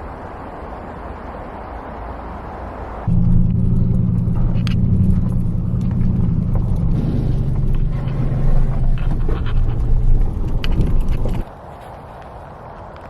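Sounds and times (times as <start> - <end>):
truck engine rumbling: 3.1 - 11.5.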